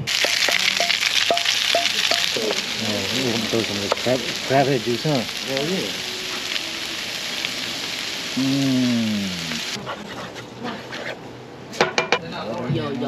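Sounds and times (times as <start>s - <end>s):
sandwich sizzling in a pan: 0.0s - 9.8s
long falling voice-like call: 8.3s - 9.6s.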